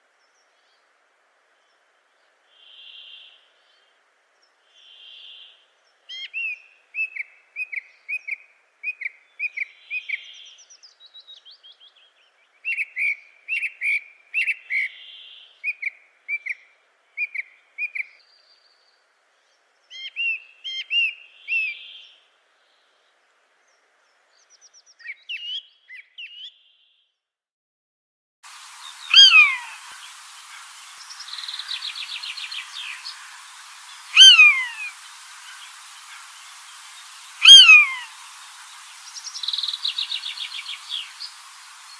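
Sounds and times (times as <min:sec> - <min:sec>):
bird chirping: 0:28.7 - 0:41.9
bird whistling: 0:29.0 - 0:29.8, 0:34.0 - 0:35.0, 0:37.4 - 0:38.2.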